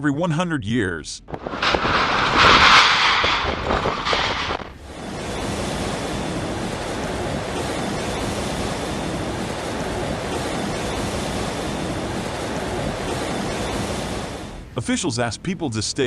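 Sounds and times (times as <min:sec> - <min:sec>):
rushing water: 0:04.8 - 0:14.7.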